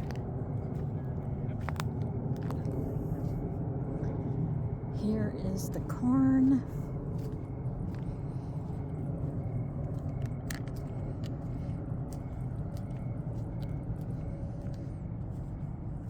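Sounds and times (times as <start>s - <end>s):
soft crunching clicks: 0.0s - 2.8s, 7.2s - 15.7s
crickets chirping: 4.6s - 16.0s.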